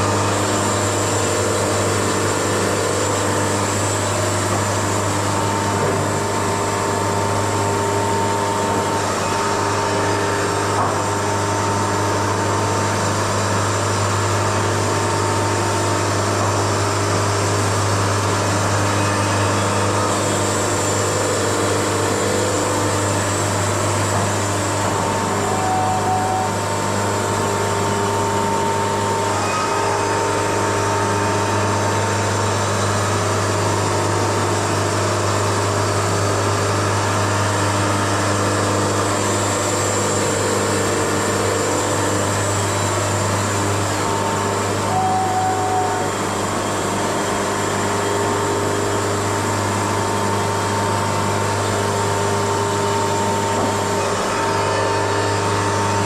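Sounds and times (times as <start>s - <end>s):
band sawmill droning: 0.0s - 56.0s.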